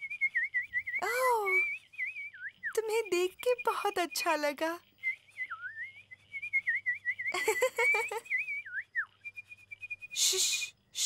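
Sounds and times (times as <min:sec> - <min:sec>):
cartoon birds whistling: 0:05.0 - 0:10.8.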